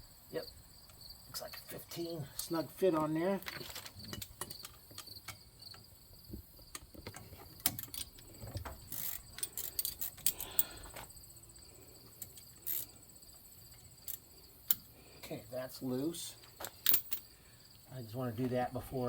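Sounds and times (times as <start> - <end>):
insects chirring: 0.0 - 19.0
wrench clicking on metal: 7.6 - 10.9, 12.2 - 13.0.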